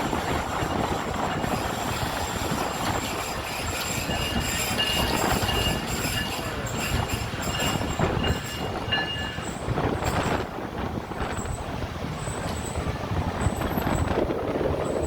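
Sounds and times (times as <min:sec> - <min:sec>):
wheels knocking: 0:00.0 - 0:10.5
train coaches rumbling on track: 0:00.0 - 0:15.0
high-pitched wheel squeals: 0:00.6 - 0:10.3.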